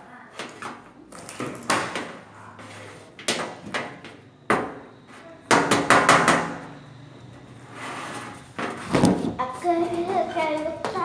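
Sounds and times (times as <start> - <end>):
sharp knocks: 5.5 - 6.6.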